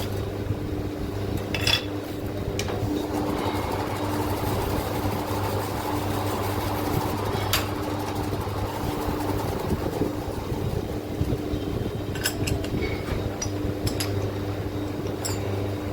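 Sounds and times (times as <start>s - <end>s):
motor humming: 2.2s - 13.8s.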